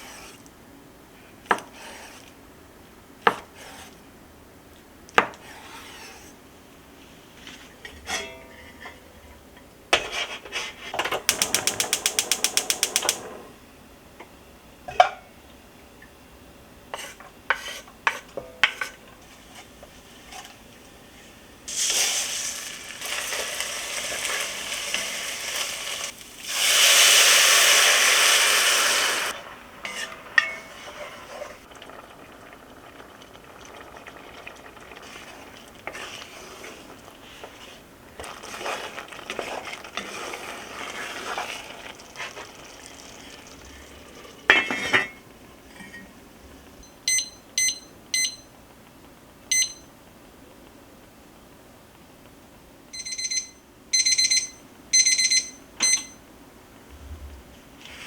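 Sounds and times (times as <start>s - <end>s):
utensils clinking on cookware: 10.0s - 13.4s, 29.8s - 31.5s, 44.5s - 46.1s
food sizzling in a pot: 11.3s - 13.5s, 21.2s - 44.9s
appliance electronic beeps: 46.8s - 48.5s, 49.5s - 49.9s, 52.9s - 56.2s.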